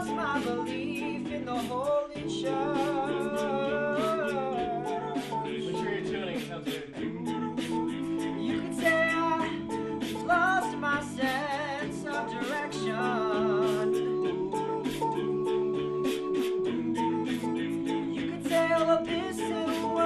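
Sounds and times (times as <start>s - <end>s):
male a cappella group singing: 0.0s - 20.0s.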